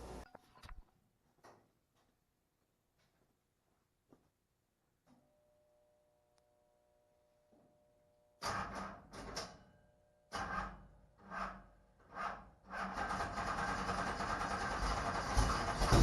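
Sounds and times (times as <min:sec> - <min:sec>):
starter motor cranking engine: 0:12.7 - 0:16.0.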